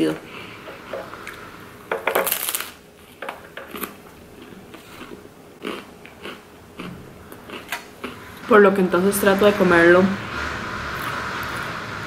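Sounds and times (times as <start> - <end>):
crisp crunches: 2.2 - 2.8
biting and chewing mouth sounds: 3.6 - 8.2.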